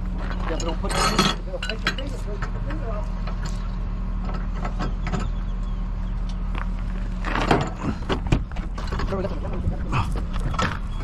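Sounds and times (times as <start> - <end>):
heavy equipment engine running: 0.0 - 11.0
metal clanks and knocks: 0.3 - 3.6, 4.2 - 5.4, 7.2 - 11.0.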